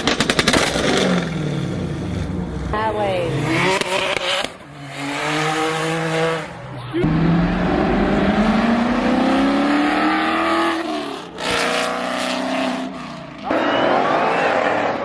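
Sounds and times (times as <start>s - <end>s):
car engine at full throttle: 0.0s - 13.5s.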